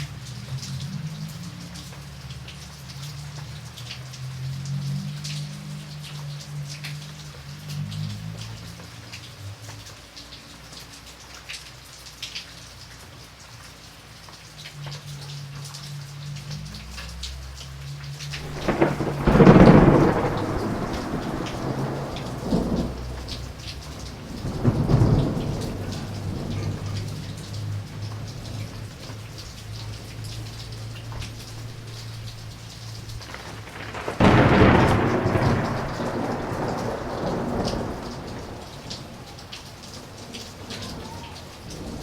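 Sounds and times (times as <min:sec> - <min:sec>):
rain pattering: 0:00.0 - 0:42.0
thunder rumbling: 0:18.3 - 0:42.0.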